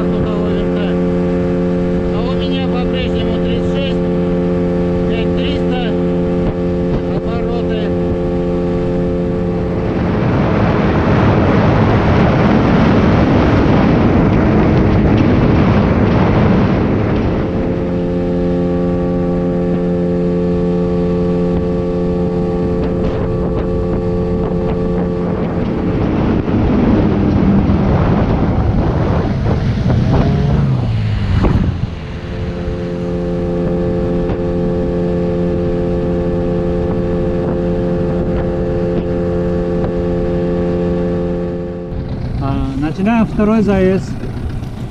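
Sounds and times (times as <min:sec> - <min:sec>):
outboard motor running: 0:00.0 - 0:44.9
rushing noise: 0:25.1 - 0:34.2.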